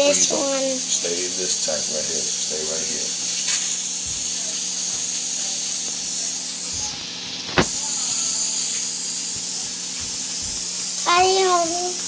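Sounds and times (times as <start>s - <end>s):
sharp knock: 7.5s - 8.1s.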